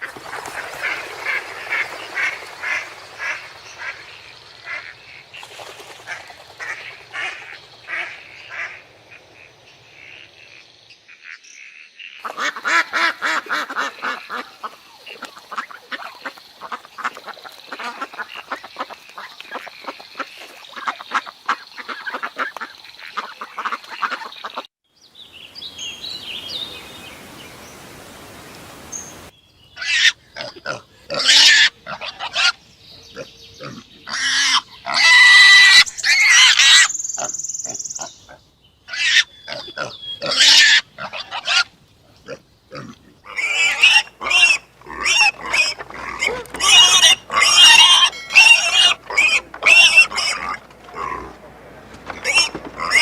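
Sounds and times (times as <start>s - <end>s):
flock of waterfowl calling: 0.0s - 10.3s, 12.2s - 24.7s, 43.3s - 53.0s.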